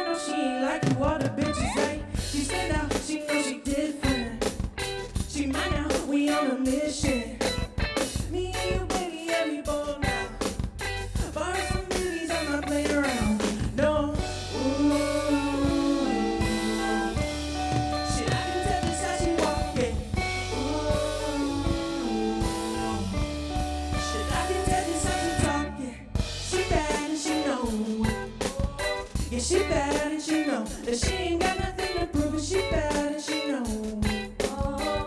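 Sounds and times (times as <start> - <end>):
drum kit beat: 0.8 - 35.0
steady bass: 1.2 - 6.1, 6.7 - 9.1, 9.7 - 33.1, 33.7 - 35.0
gliding melodic lead line: 14.2 - 29.8.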